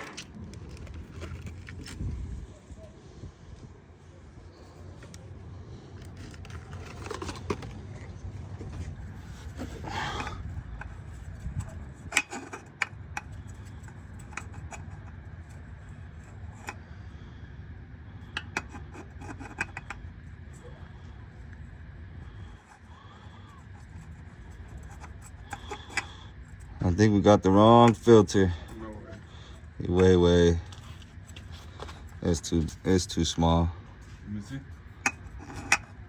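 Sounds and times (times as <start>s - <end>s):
rubbing and scraping: 6.0s - 16.8s, 22.2s - 32.8s.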